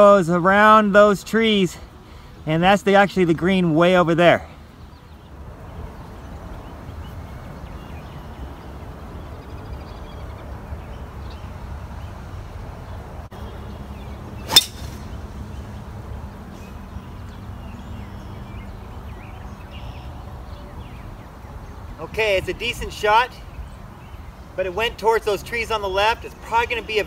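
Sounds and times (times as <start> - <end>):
golf ball struck crack: 14.4 - 15.2.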